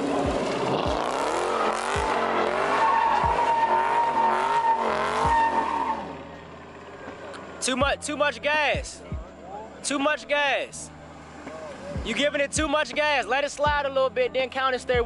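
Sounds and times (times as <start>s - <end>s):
tyres squealing: 0.0s - 6.8s
car engine revving: 0.0s - 10.1s, 10.8s - 14.2s.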